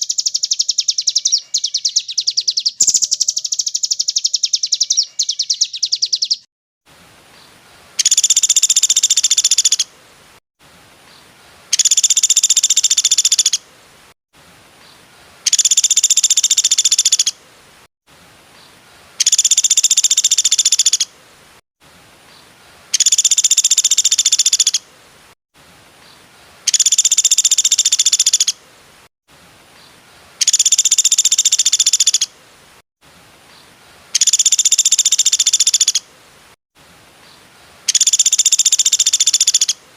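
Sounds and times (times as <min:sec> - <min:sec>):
bird rattling trill: 0:02.8 - 0:06.4, 0:34.2 - 0:36.0
faint hiss: 0:06.9 - 0:39.9.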